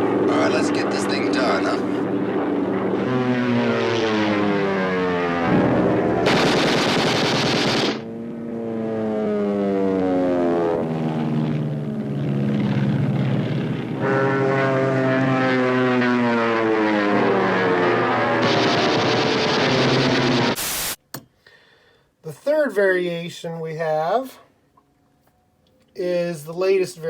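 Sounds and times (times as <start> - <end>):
propeller plane engines droning: 0.0 - 20.6
loud burst of noise: 2.7 - 8.4, 10.8 - 21.0
tv static hiss: 19.8 - 21.0.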